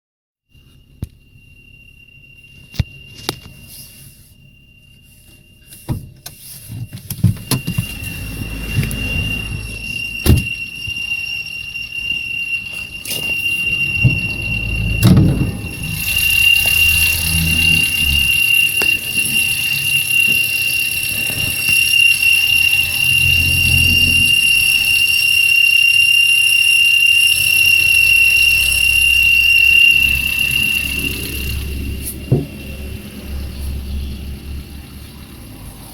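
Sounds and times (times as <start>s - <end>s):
drive belt squealing: 0.6s - 35.9s
engine running: 12.7s - 25.8s, 27.0s - 35.9s.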